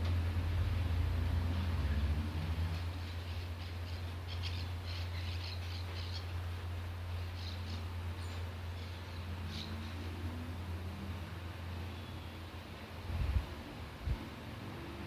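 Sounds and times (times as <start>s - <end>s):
low background hum: 0.0s - 15.0s
small birds chirping: 2.8s - 10.2s.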